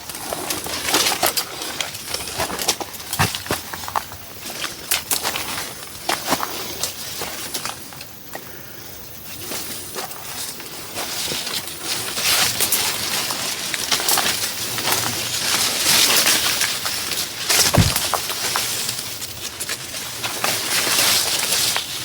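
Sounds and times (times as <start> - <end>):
low thump: 17.6 - 18.1
short crackles: 17.6 - 18.2.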